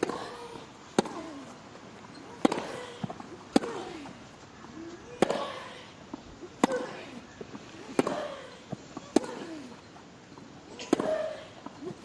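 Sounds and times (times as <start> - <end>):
tennis ball struck by racket: 0.0 - 1.5, 2.4 - 4.2, 5.2 - 5.6, 6.6 - 7.0, 7.9 - 8.3, 9.1 - 9.5, 10.8 - 11.3.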